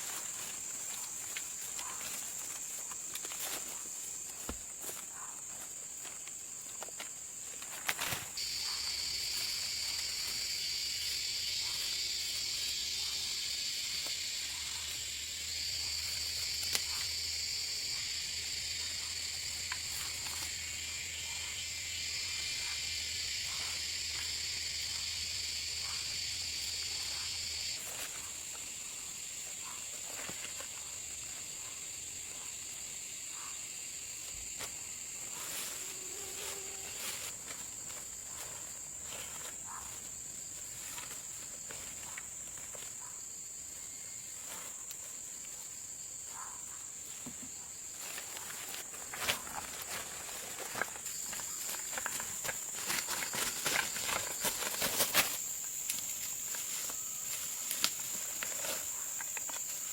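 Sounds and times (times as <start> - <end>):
faint clicks and rustles: 0.0 - 10.4, 47.1 - 59.9
insect high-pitched trill: 0.0 - 59.9
buzzing insect: 35.4 - 37.8.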